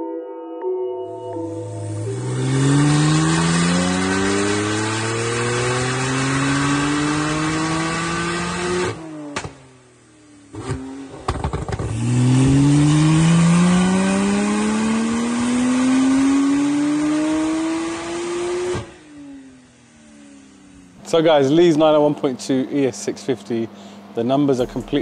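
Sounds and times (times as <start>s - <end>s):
car engine at full throttle: 1.4s - 25.0s
exhaust cracks: 10.5s - 13.9s, 21.0s - 25.0s.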